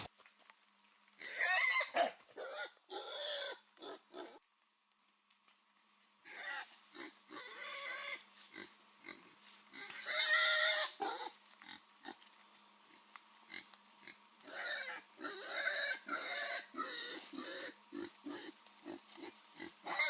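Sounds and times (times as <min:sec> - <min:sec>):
pig grunting: 0:01.2 - 0:04.4, 0:13.5 - 0:20.0
pig squealing: 0:01.2 - 0:04.4, 0:06.3 - 0:08.2, 0:09.8 - 0:11.4, 0:14.4 - 0:20.0.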